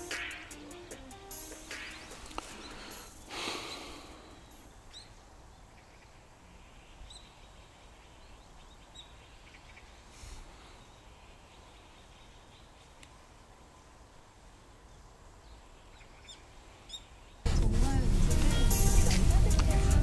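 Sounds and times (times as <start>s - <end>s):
faint bird chirps: 1.7s - 13.9s.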